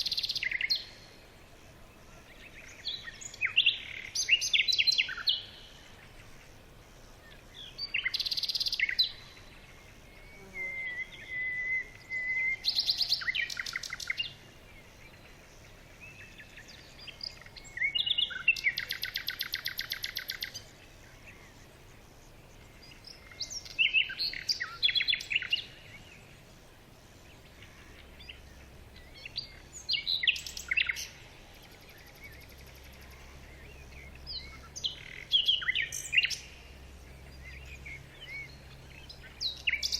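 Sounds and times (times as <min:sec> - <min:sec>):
birds trilling chirps: 0:00.0 - 0:39.9.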